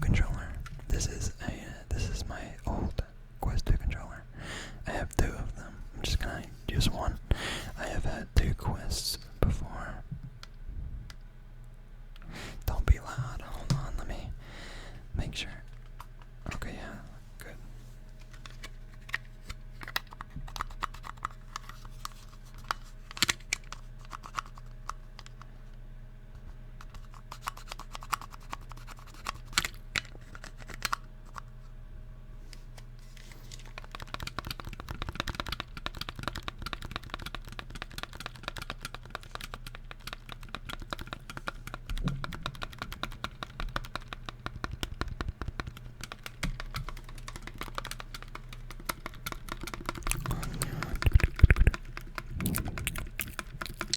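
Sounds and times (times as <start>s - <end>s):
fingers tapping on plastic controller: 33.8s - 52.3s.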